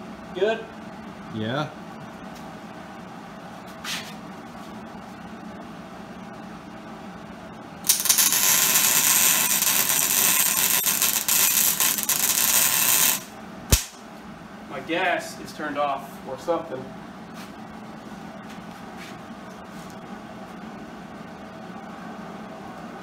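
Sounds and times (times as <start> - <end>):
low steady hum: 0.0 - 23.0
welder arc crackling: 7.8 - 14.0.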